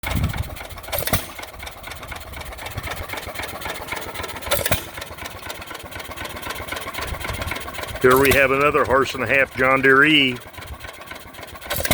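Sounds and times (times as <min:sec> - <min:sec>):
engine firing bang: 0:00.0 - 0:01.5, 0:04.5 - 0:05.0, 0:11.7 - 0:11.9
engine ticking: 0:00.0 - 0:11.9.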